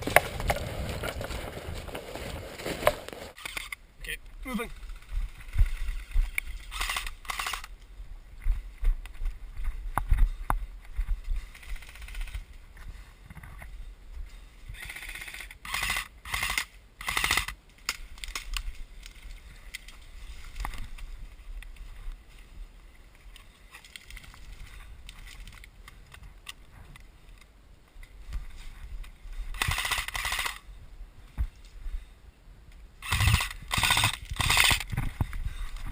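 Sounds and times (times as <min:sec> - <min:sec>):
wind rumble on microphone: 0:00.0 - 0:03.4, 0:30.6 - 0:35.9
footsteps: 0:00.0 - 0:03.7, 0:04.7 - 0:14.8, 0:17.7 - 0:30.6.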